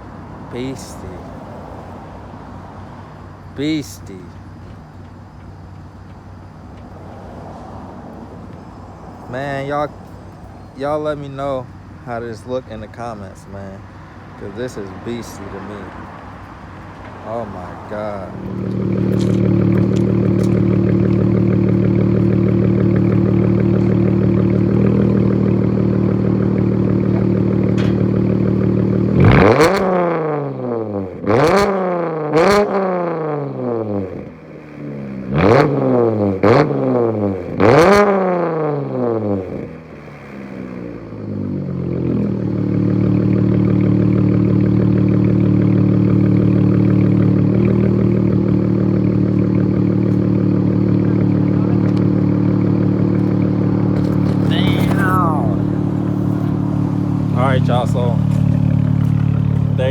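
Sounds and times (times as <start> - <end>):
car engine idling: 0.0 - 59.9
engine revving: 14.4 - 59.9.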